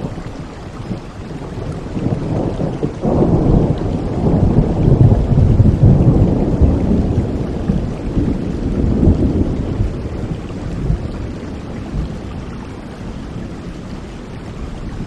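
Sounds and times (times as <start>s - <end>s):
rain falling: 0.0s - 15.0s
thunder rumbling: 0.0s - 15.0s.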